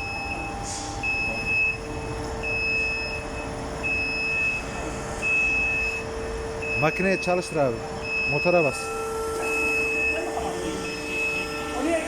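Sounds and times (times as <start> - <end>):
electronic warning beeper: 0.0 - 12.0
steady machine hum: 0.0 - 12.0.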